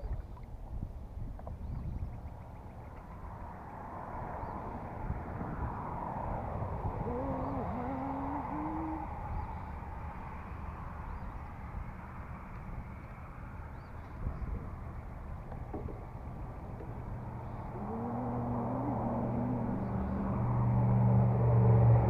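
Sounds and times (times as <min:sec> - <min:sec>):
bird hooting: 0:06.9 - 0:09.7, 0:17.4 - 0:20.5.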